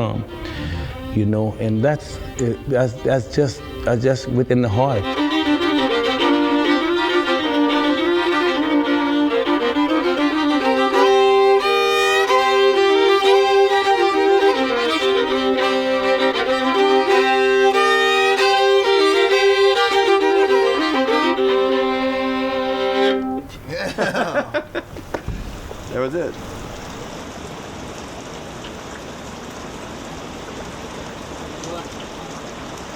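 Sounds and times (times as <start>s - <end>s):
fiddle tune with bowed notes: 0.0s - 23.5s.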